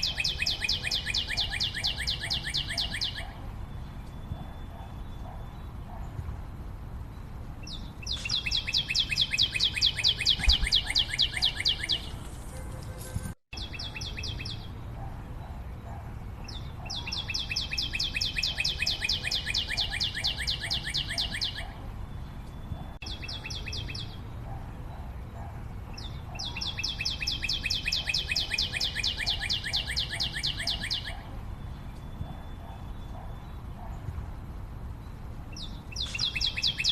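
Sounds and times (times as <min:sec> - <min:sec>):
bird high trill: 0:00.0 - 0:03.4, 0:08.0 - 0:12.3, 0:16.9 - 0:21.8
bird chirps: 0:00.0 - 0:06.3, 0:07.1 - 0:13.0, 0:13.6 - 0:34.2, 0:34.9 - 0:36.9.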